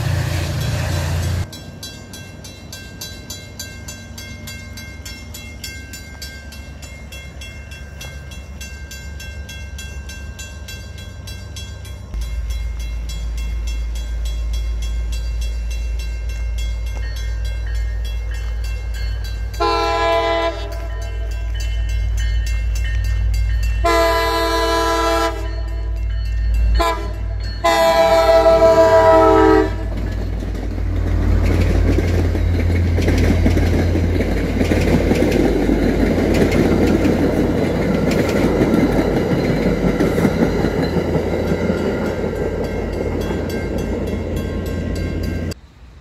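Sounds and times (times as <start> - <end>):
train wheels rumbling on rails: 0.0 - 46.0
train horn blasts: 19.6 - 21.5, 23.8 - 26.0, 26.7 - 30.0.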